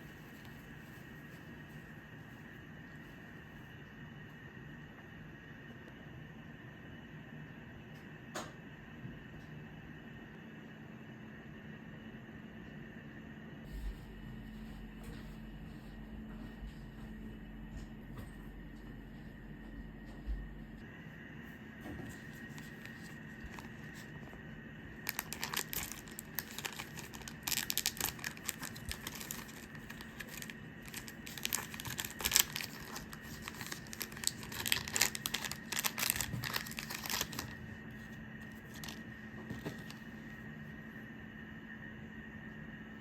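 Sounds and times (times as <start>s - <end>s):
crinkling and rustling: 0.0s - 3.3s, 21.8s - 40.4s
faint steady hum: 0.0s - 43.0s.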